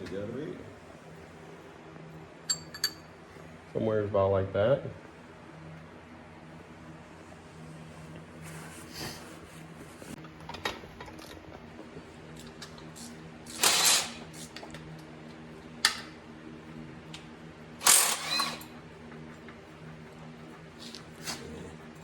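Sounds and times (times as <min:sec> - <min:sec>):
steady background hum: 0:00.0 - 0:22.0
loud rasping bursts: 0:17.8 - 0:18.6.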